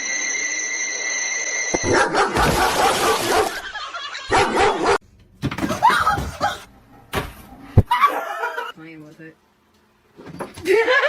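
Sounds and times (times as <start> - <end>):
dog yipping and barking: 1.8 - 3.6, 4.3 - 5.0.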